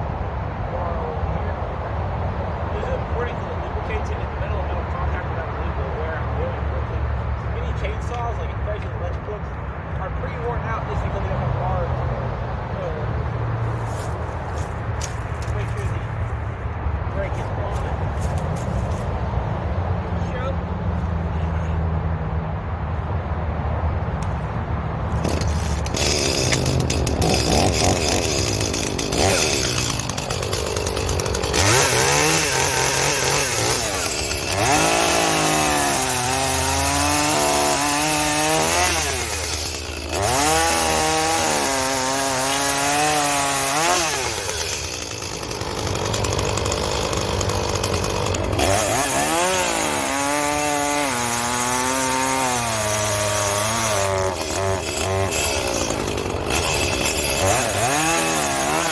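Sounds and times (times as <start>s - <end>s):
chainsaw revving: 25.1s - 58.9s.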